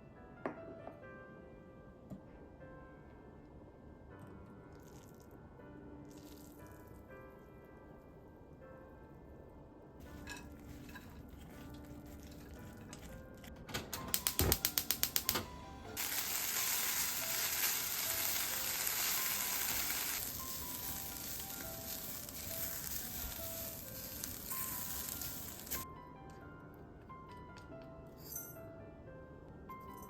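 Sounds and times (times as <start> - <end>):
soft background music: 0.0 - 30.0
quick clicks: 13.9 - 15.5
food sizzling in a frying pan: 16.0 - 25.8.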